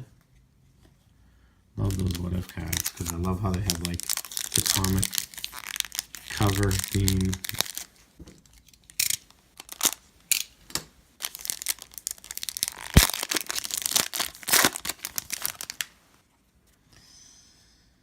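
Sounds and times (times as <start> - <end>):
card wrapper crinkling: 1.8 - 10.5, 11.2 - 16.0.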